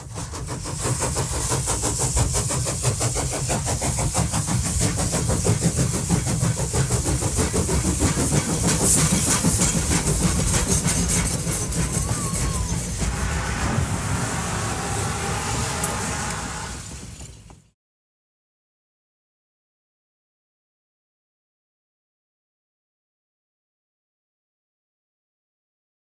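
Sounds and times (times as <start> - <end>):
hiss: 0.0 - 17.6.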